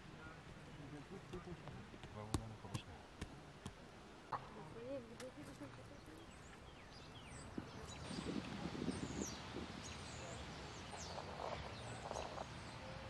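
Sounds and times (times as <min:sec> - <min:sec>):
faint outdoor background: 0:00.0 - 0:13.0
small birds chirping: 0:04.0 - 0:13.0.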